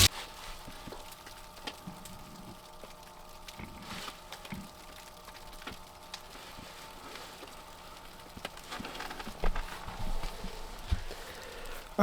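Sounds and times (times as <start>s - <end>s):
food sizzling in a pan: 0.0s - 8.3s.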